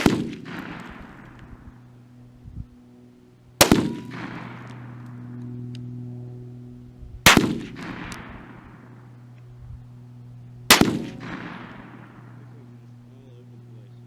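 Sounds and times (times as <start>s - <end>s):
rifle shots with echo: 0.0s - 1.8s, 3.6s - 5.4s, 7.2s - 9.2s, 10.7s - 12.8s
steady low hum: 0.0s - 14.0s.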